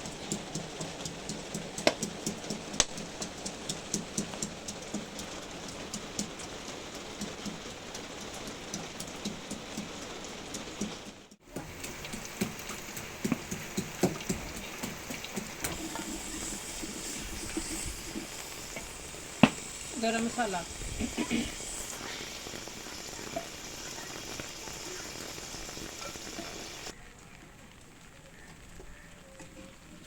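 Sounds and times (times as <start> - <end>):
drops ticking on hard surfaces: 0.0 - 16.2
rain falling: 0.0 - 30.0.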